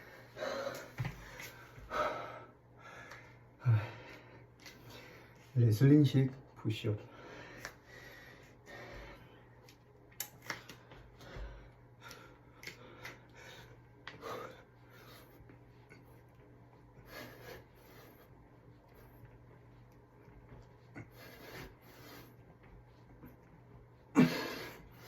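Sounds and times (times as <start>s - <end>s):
low steady hum: 0.0s - 25.0s
faint breathing: 7.0s - 9.5s.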